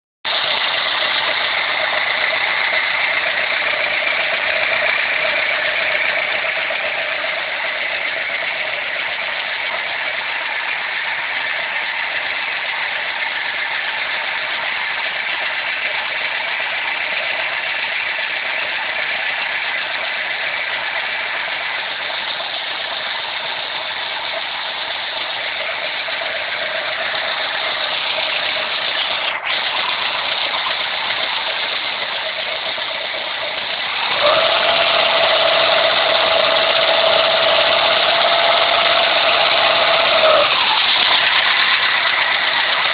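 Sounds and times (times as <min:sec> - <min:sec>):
car engine running: 0:00.3 - 0:42.9
mechanical rattle: 0:00.3 - 0:42.9.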